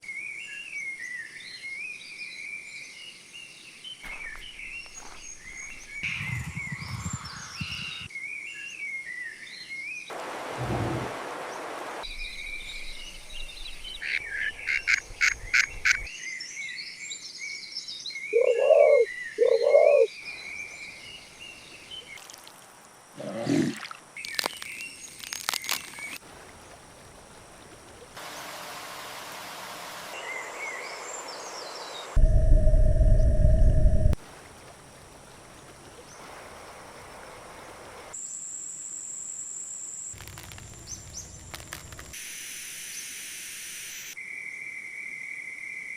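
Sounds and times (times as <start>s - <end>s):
frogs and insects chorus: 4.0s - 8.1s, 13.0s - 16.1s, 18.4s - 22.2s
bird chirps: 4.0s - 9.3s, 18.0s - 22.1s
lower animal call: 18.4s - 20.1s.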